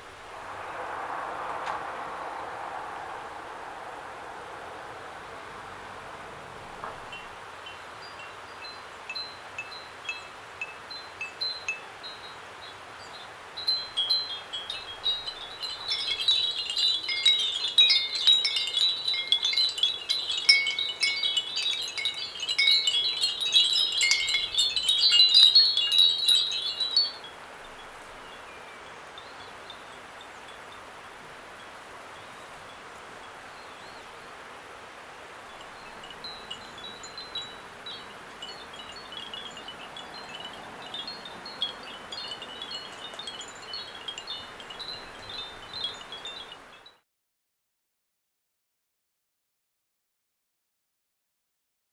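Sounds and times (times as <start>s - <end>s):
ceramic wind bells ringing: 13.1s - 28.8s, 35.6s - 46.8s.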